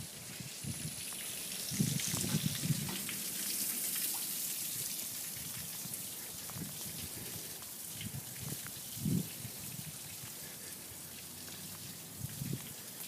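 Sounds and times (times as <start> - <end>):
wind buffeting microphone: 0.0 - 3.3, 5.3 - 10.4, 12.0 - 12.9
rain hissing: 0.0 - 13.0
raindrops ticking: 0.0 - 13.0.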